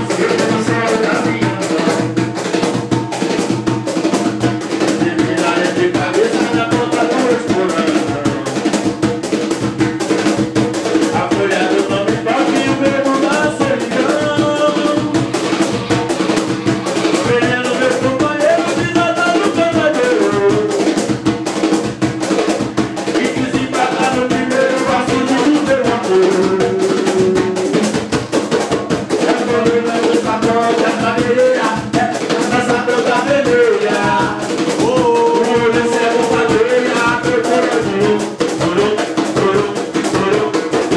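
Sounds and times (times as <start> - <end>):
drum beat: 0.0 - 40.9.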